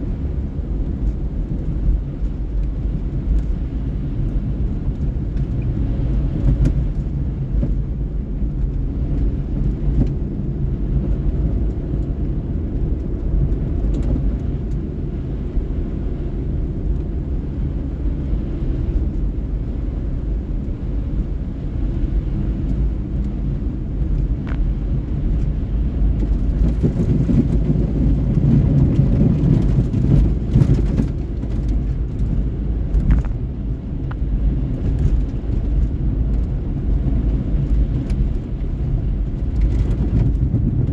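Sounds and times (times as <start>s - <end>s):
car engine rumble: 0.0s - 40.9s
tyres on road: 0.0s - 40.9s.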